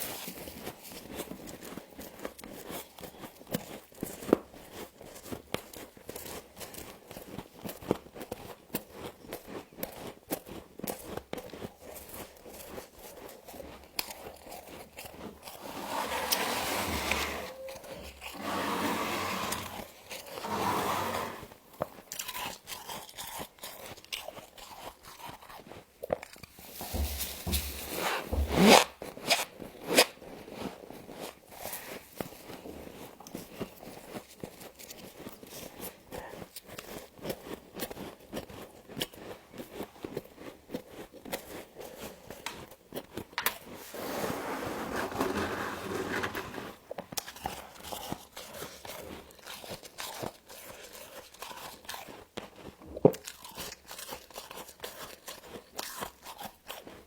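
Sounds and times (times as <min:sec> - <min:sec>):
frost crunching when chewed: 0:00.0 - 0:15.9, 0:19.5 - 0:20.5, 0:21.4 - 0:28.2, 0:28.8 - 0:43.9, 0:46.8 - 0:57.0
rasping scraping while chewing: 0:00.0 - 0:57.0
short rising squeak: 0:15.8 - 0:19.7.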